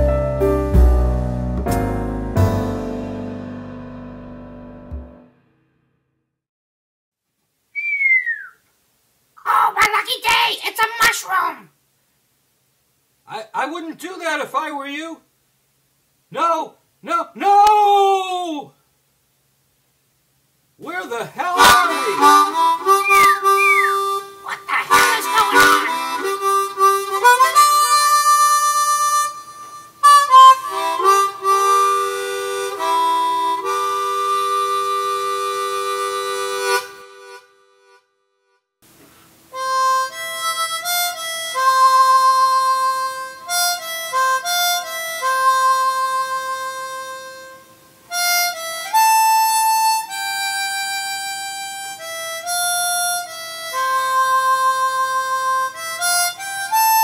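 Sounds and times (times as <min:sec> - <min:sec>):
harmonica melody: 0:21.4 - 0:38.1, 0:39.5 - 0:57.0.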